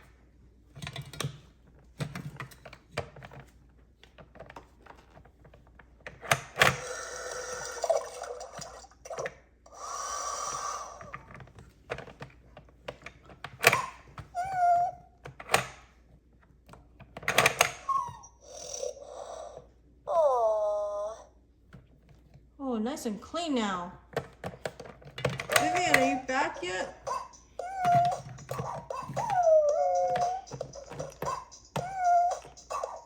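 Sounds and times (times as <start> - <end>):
plastic toys knocking and clicking: 0.7 - 9.4, 10.5 - 15.9, 16.6 - 18.2, 24.1 - 33.0.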